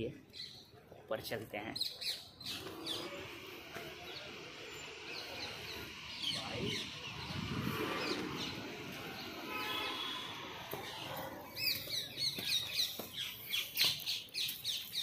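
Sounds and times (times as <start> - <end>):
small birds chirping: 1.5 - 15.0.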